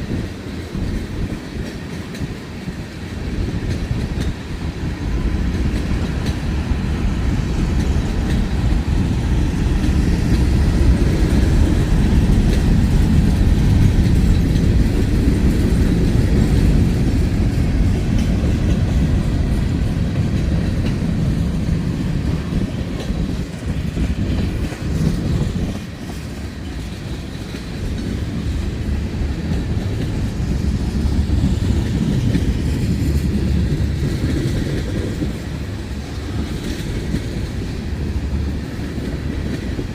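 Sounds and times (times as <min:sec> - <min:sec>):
freight train wheels rumbling on rails: 0:00.0 - 0:39.9.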